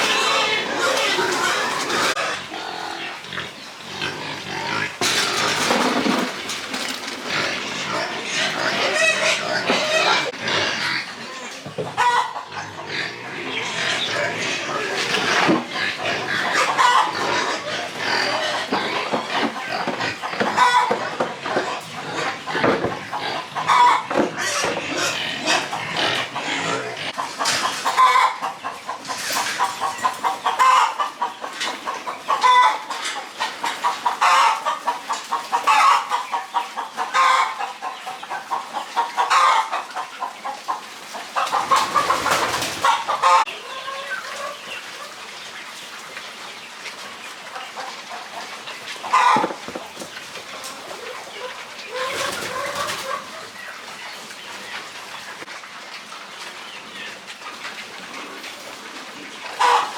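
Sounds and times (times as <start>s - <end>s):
farm animals calling: 0.0s - 59.9s.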